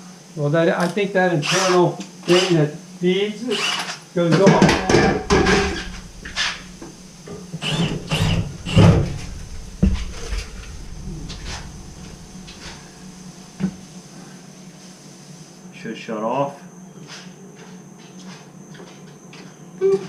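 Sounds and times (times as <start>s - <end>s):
handling knocks and clunks: 4.4s - 13.2s
water heater humming: 4.5s - 14.1s.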